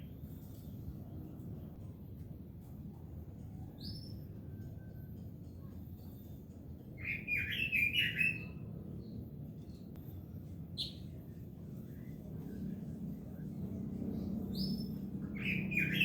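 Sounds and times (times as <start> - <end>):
bird warbling song: 10.8 - 11.1, 14.2 - 16.0
high bird chirp: 14.5 - 16.0.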